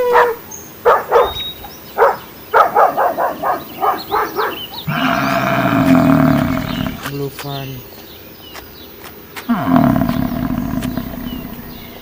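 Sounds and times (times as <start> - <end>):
dog barking and yipping: 0.0 - 4.8
dog drawn-out call: 0.0 - 7.0.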